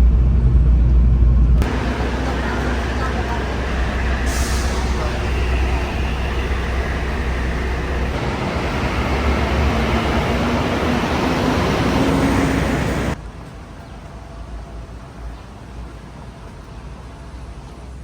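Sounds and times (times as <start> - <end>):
road noise rumble: 0.0 - 18.0
vehicle engine pulling away: 1.6 - 13.2.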